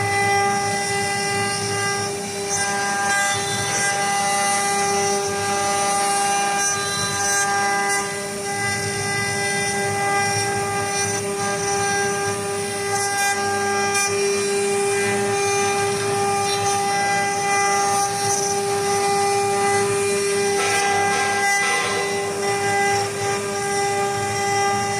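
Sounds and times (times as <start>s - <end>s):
cnc router spindle whine: 0.0s - 24.9s
rough rasp of cutting: 18.0s - 23.3s.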